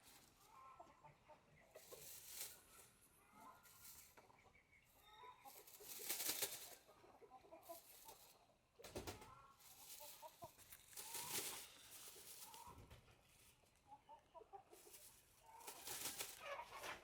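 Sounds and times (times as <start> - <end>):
chickens clucking: 0.0 - 17.0
rustling and scuffing: 1.8 - 2.7, 9.6 - 13.6, 14.8 - 17.0.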